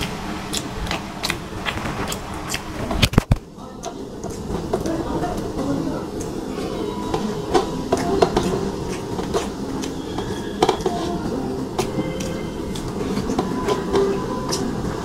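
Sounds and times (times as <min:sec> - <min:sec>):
wet mouth clicks and smacks: 0:00.0 - 0:04.5, 0:08.0 - 0:10.4
person chewing food: 0:00.0 - 0:14.8.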